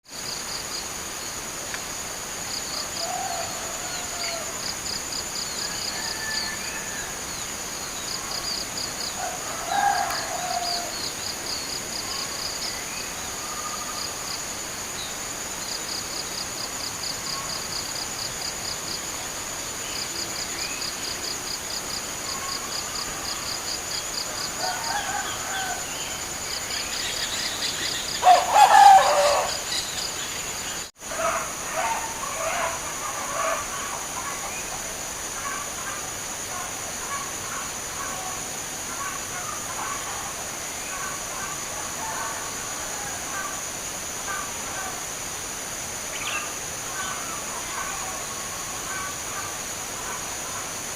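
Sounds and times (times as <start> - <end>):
high insect drone: 0.1 - 50.9
rapid pulsed insect chirping: 0.1 - 50.9
other birds calling: 26.9 - 34.8
dove cooing: 28.2 - 29.6.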